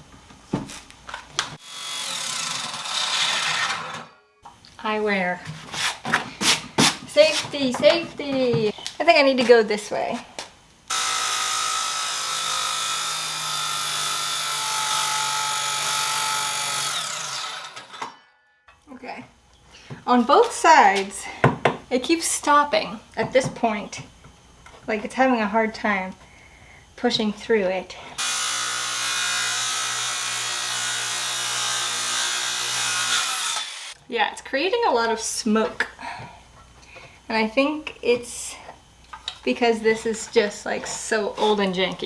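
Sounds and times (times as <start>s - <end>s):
electric saw cutting wood: 1.6s - 4.4s, 10.9s - 18.4s, 28.2s - 34.0s.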